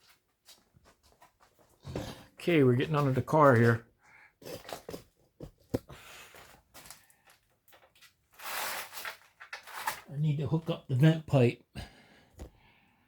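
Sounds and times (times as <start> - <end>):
rustling and scraping: 4.4 - 10.1.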